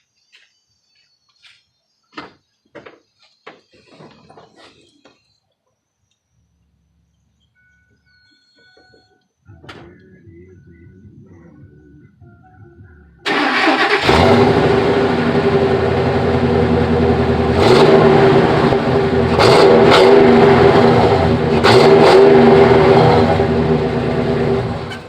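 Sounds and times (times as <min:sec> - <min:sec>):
truck engine running and revving: 0:13.2 - 0:25.0.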